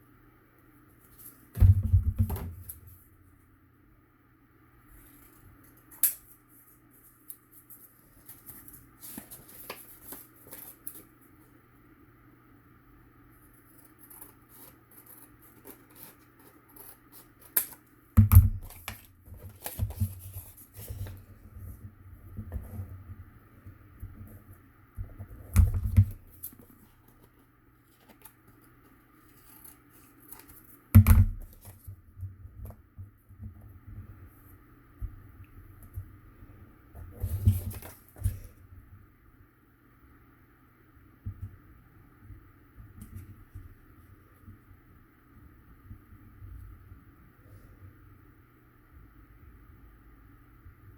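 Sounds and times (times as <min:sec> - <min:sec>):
paper clicks and rustles: 0:05.0 - 0:11.1, 0:13.6 - 0:17.9, 0:18.6 - 0:21.3, 0:25.5 - 0:30.8, 0:37.2 - 0:38.5.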